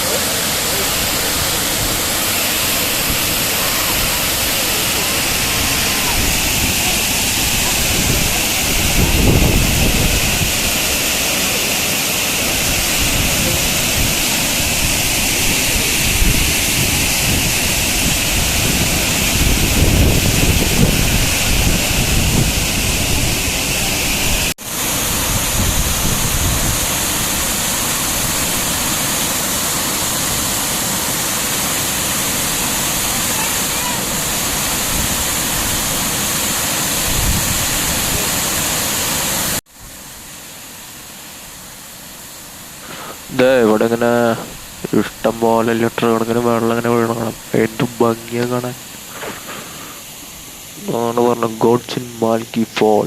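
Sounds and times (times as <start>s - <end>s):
waterfall rushing: 0.0s - 53.0s
wind buffeting microphone: 1.2s - 11.0s, 12.6s - 28.5s, 36.9s - 38.4s.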